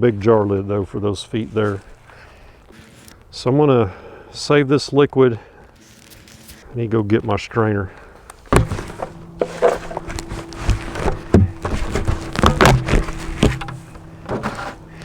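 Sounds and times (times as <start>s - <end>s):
steady low hum: 6.6s - 15.0s
gear being handled: 8.3s - 15.0s
footsteps: 8.4s - 15.0s.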